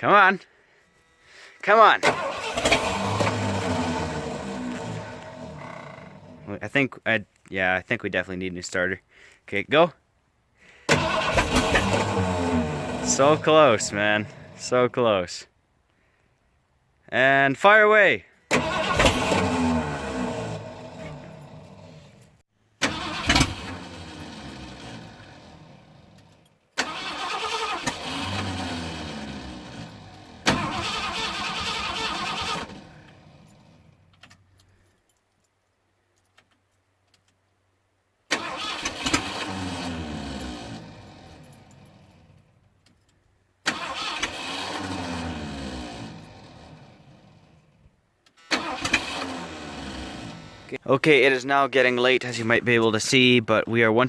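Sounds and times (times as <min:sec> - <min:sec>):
engine starter cranking: 0:01.9 - 0:06.5, 0:10.8 - 0:14.5, 0:18.5 - 0:22.2, 0:22.8 - 0:33.8, 0:38.3 - 0:42.2, 0:43.6 - 0:47.4, 0:48.3 - 0:50.8.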